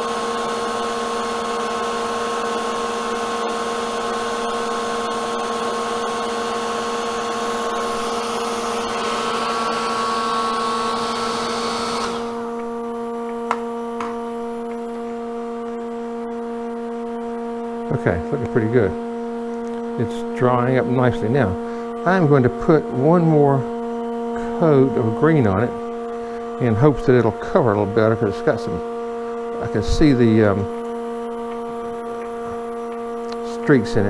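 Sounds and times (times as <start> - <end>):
hair dryer blowing: 0.0 - 12.9
steady machine hum: 0.0 - 34.0.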